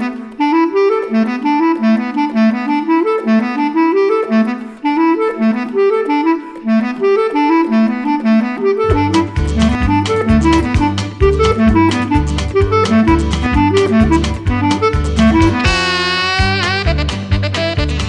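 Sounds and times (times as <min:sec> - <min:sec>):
saxophones playing repeating figures: 0:00.0 - 0:18.0
low percussive bass line: 0:08.9 - 0:18.0.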